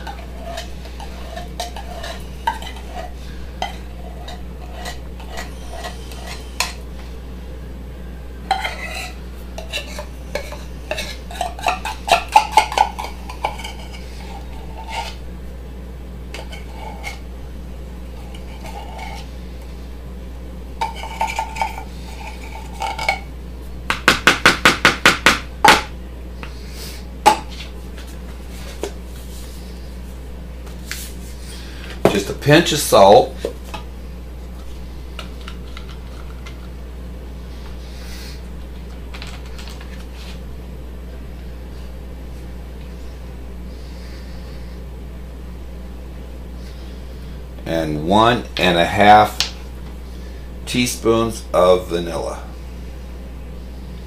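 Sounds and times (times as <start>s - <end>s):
metal spoon clinking and scraping: 0.0s - 6.8s, 8.5s - 15.2s, 20.8s - 23.3s.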